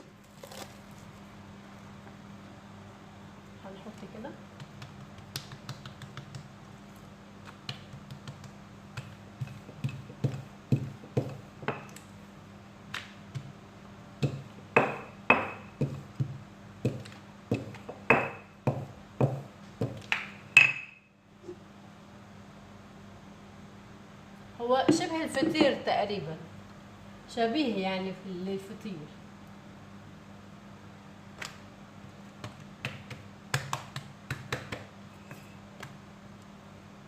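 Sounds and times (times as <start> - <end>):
faint steady hum: 0.0 - 37.0
dough slapped on work surface: 4.6 - 6.5, 14.2 - 20.7, 32.4 - 34.9.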